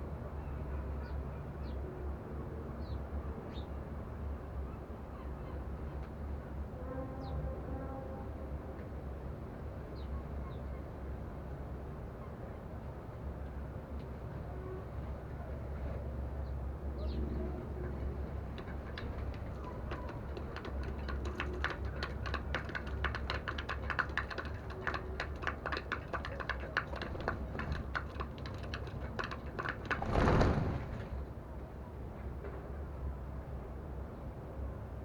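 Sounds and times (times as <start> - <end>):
sparrows pecking seed: 17.9 - 30.6.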